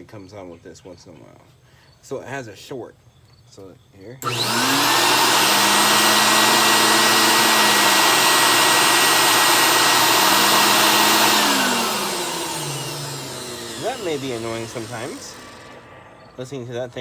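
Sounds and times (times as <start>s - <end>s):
vacuum cleaner motor whining: 4.2s - 17.0s
man talking: 16.4s - 17.0s.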